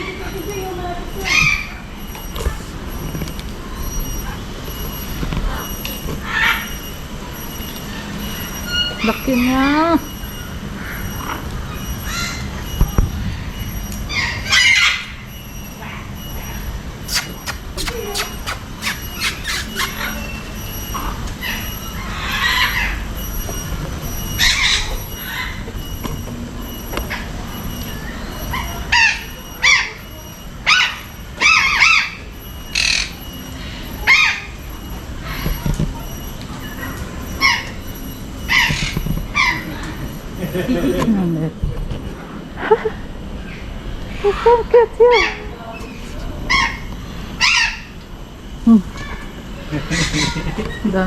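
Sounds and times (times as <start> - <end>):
parrots calling and squawking: 0.0 - 40.9, 42.6 - 48.0, 48.9 - 51.0
parrots squawking: 16.4 - 23.0, 46.5 - 48.0, 49.8 - 50.8.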